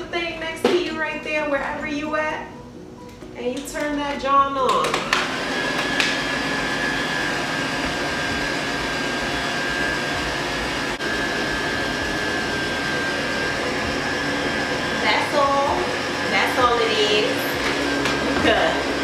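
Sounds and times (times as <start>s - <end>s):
hair dryer running: 4.7s - 19.0s.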